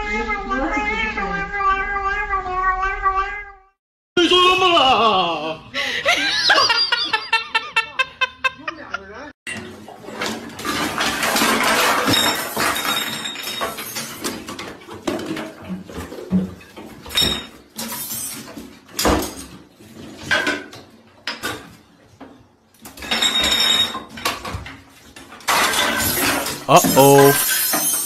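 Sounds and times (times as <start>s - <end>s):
household objects rattling: 9.7s - 17.0s.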